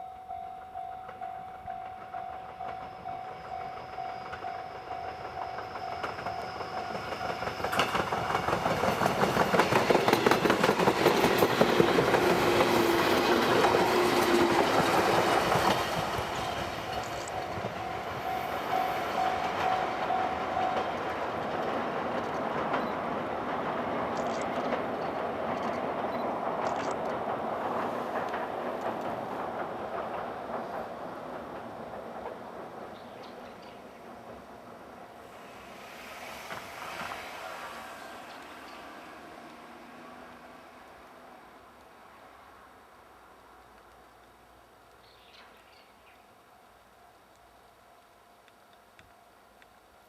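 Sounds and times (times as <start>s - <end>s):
electric train passing: 0.0s - 50.0s
wheels clattering over rail joints: 1.8s - 17.9s.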